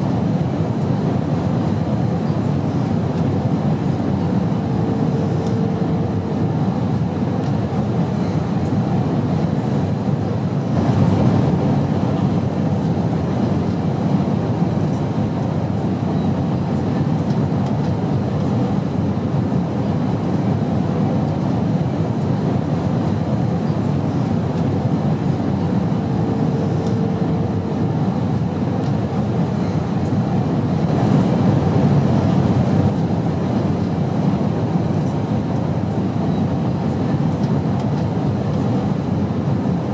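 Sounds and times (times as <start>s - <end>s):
airplane roar in flight: 0.0s - 39.9s.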